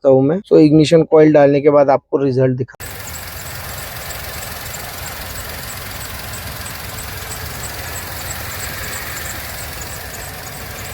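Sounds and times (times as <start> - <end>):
car engine idling: 2.8 - 10.9
faint regular ticking: 2.8 - 10.9.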